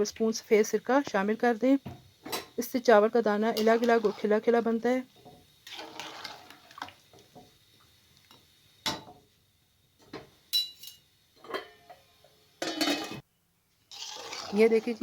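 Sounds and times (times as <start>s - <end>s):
utensil clinking on metal pot: 10.5s - 12.0s.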